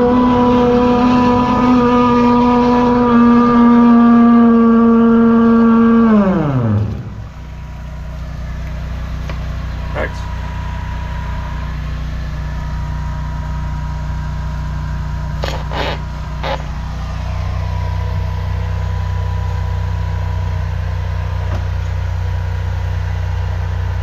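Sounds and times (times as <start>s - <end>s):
engine running: 0.0s - 24.0s
short bursts of noise: 15.3s - 17.2s.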